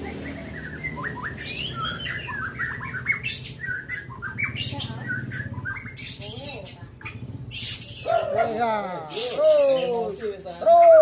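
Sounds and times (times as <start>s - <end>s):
bird singing chirps and trills: 0.0s - 11.0s.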